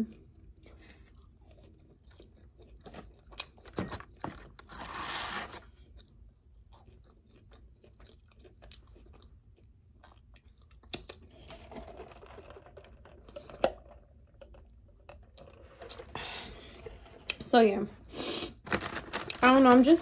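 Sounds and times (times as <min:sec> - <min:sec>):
person chewing: 0:00.1 - 0:04.2, 0:05.6 - 0:11.4.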